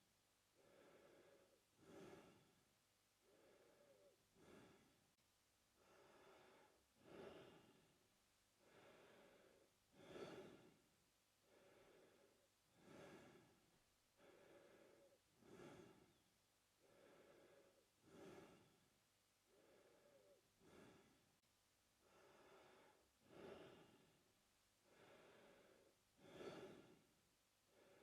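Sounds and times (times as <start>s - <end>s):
man breathing through mouth: 0.6s - 2.5s, 3.2s - 5.0s, 8.6s - 10.8s, 11.5s - 13.6s, 14.2s - 16.2s, 16.8s - 18.8s, 24.9s - 27.1s.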